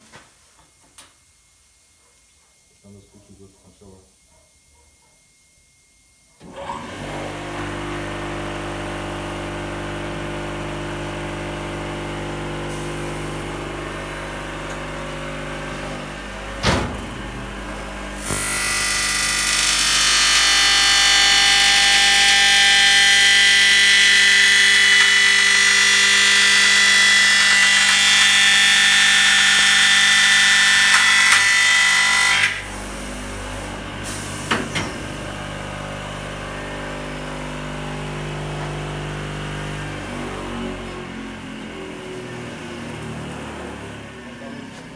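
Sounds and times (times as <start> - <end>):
machine humming: 6.4 - 44.7
high cutting whine: 17.3 - 33.4.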